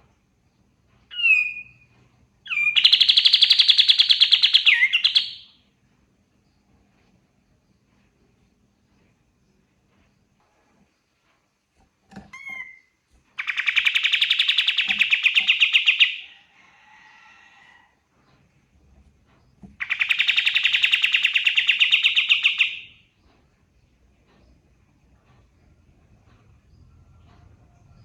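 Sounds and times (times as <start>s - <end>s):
bird chirp: 1.1s - 5.6s, 12.3s - 16.4s, 19.8s - 23.3s.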